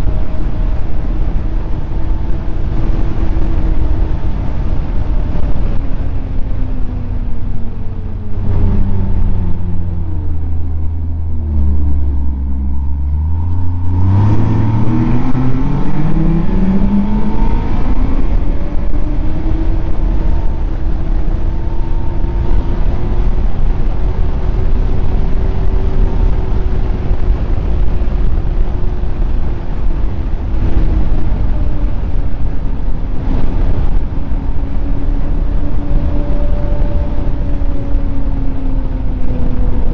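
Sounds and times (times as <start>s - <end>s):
snowmobile engine: 0.0s - 39.9s.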